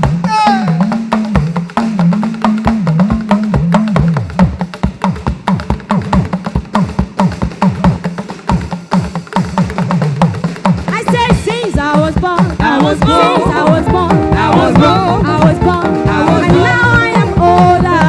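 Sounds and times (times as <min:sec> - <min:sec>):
drums and percussion: 0:00.0 - 0:18.0
low sliding bass notes: 0:13.1 - 0:18.0.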